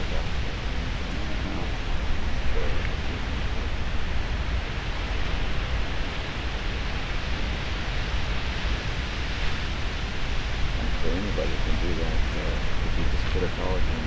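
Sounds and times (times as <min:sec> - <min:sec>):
ocean surf: 0:00.0 - 0:10.9
wind rumbling on microphone: 0:00.0 - 0:14.0.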